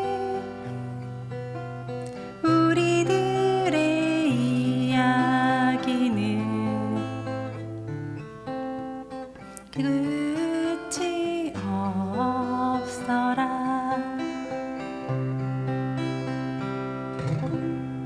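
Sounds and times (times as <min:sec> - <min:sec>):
person singing: 0:00.0 - 0:00.9, 0:02.4 - 0:07.5, 0:09.6 - 0:14.8
acoustic guitar: 0:00.0 - 0:18.0.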